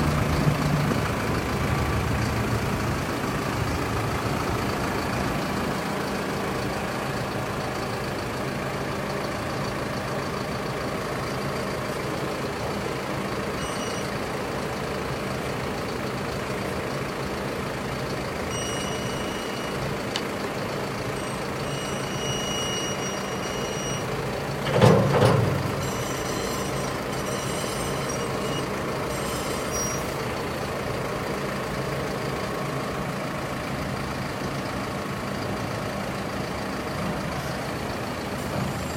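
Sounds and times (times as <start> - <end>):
tractor diesel engine idling: 0.0 - 38.9
high-pitched beeping: 18.5 - 19.8, 21.2 - 24.1, 25.8 - 30.1.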